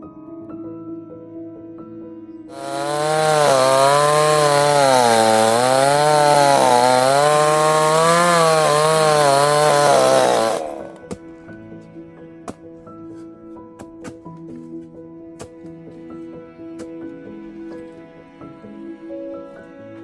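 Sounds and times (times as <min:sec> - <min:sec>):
chainsaw cutting under load: 0:02.5 - 0:11.1.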